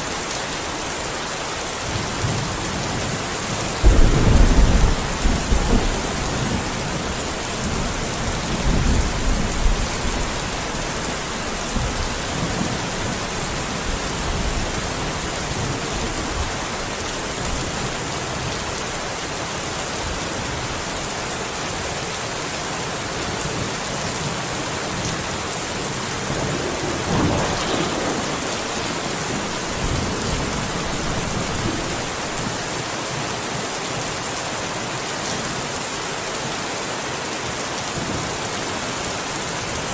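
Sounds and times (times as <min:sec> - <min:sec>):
steady rain hiss: 0:00.0 - 0:39.9
thunder rumbling: 0:01.9 - 0:16.6, 0:25.8 - 0:32.7.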